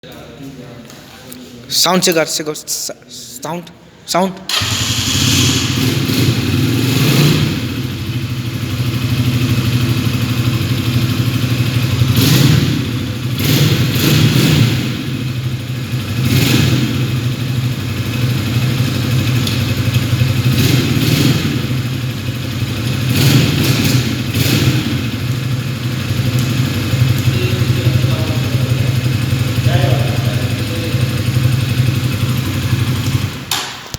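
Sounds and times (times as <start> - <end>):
motorcycle engine idling: 4.5 - 33.6
motorcycle throttle blips: 17.0 - 33.9.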